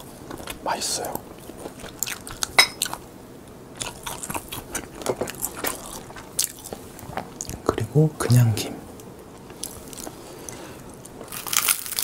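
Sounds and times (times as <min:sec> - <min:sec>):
crunching and chewing seaweed sheets: 0:00.0 - 0:03.0, 0:03.8 - 0:07.8, 0:09.4 - 0:12.0.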